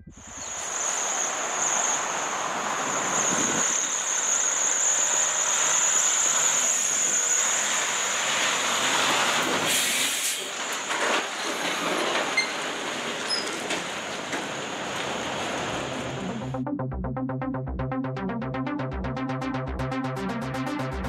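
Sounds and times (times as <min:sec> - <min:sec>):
high-pitched whine: 0:00.0 - 0:08.4, 0:16.0 - 0:21.0
vehicles driving past: 0:12.6 - 0:16.6.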